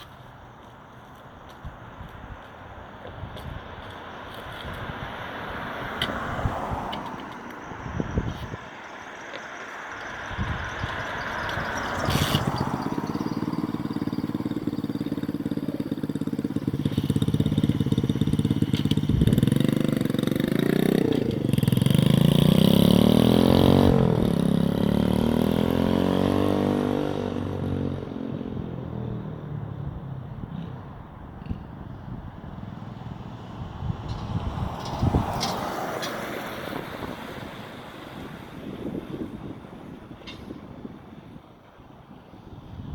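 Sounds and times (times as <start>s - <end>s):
motorbike engine revving: 11.0s - 28.3s.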